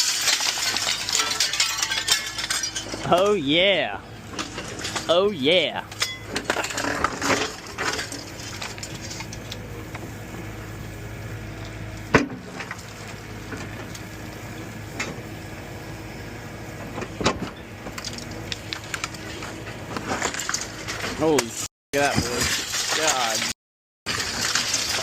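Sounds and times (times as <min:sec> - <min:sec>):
wood cracking and debris clattering: 0:00.0 - 0:03.4, 0:04.2 - 0:05.2, 0:05.9 - 0:10.0, 0:12.2 - 0:14.4, 0:16.8 - 0:25.0
heavy machine engine running: 0:00.0 - 0:21.4.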